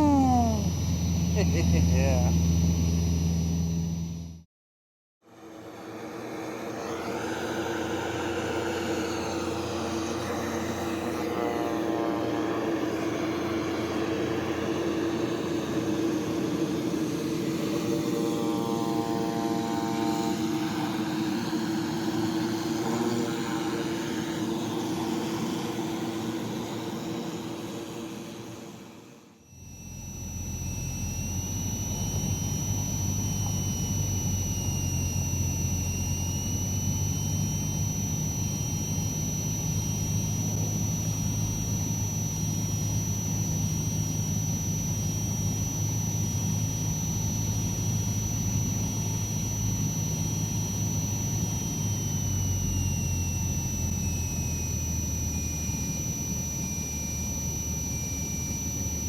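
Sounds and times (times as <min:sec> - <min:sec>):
thin high whine: 0:00.0 - 0:04.4, 0:29.5 - 0:59.0.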